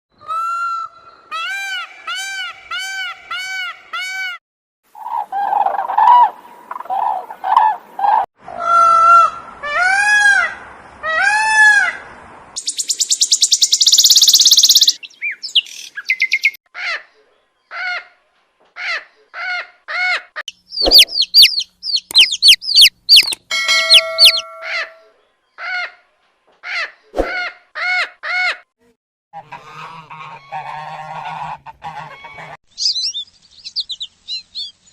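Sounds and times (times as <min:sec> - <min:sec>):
squawking bird calls: 0:18.8 - 0:26.0
buzzy bird call: 0:20.7 - 0:25.1.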